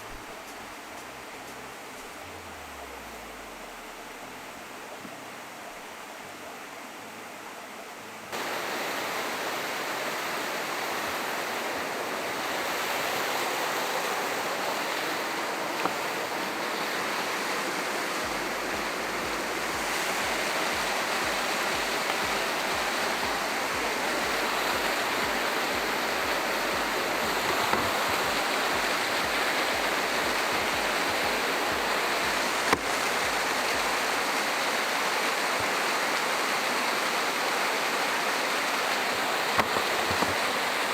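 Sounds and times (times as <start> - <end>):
waterfall rushing: 8.3 - 40.9.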